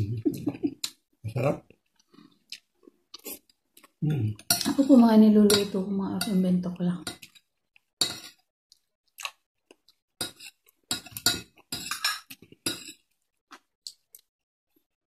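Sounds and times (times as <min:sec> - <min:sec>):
person chewing food: 0:01.7 - 0:04.6, 0:07.2 - 0:15.0
cutlery clinking against a bowl: 0:04.4 - 0:06.4, 0:07.0 - 0:08.4, 0:10.2 - 0:13.1.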